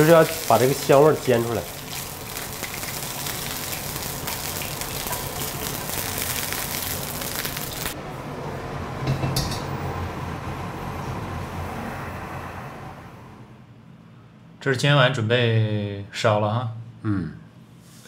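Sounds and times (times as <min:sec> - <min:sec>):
chicken wings sizzling in oil: 0:00.0 - 0:08.0.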